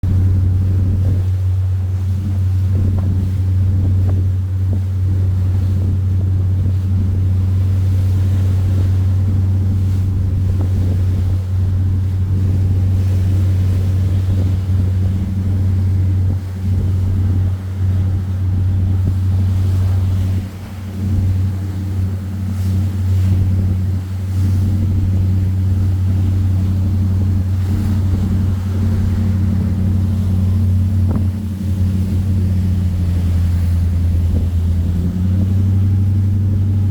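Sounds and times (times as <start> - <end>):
boat engine droning: 0.0 - 36.9
wind on microphone: 0.0 - 36.9.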